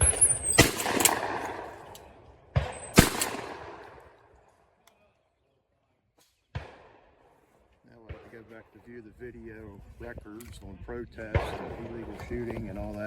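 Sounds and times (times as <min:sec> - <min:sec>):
shotgun shots echoing: 0:00.0 - 0:04.3, 0:06.5 - 0:07.2.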